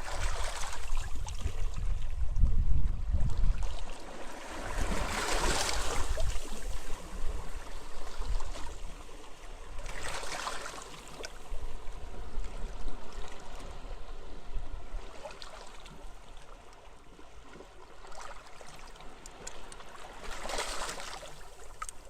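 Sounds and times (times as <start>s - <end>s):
gusting wind rumble: 0.8s - 3.7s.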